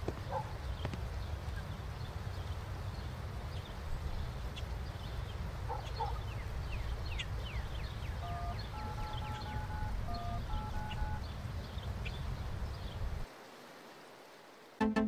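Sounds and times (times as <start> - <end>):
wind rumble on microphone: 0.0 - 13.3
faint bird chirps: 3.6 - 13.0.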